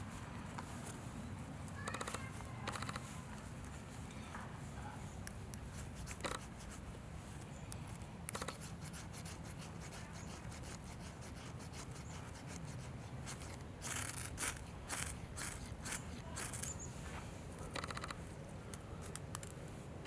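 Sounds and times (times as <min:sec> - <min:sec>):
short scraping rubs: 0:08.4 - 0:17.3.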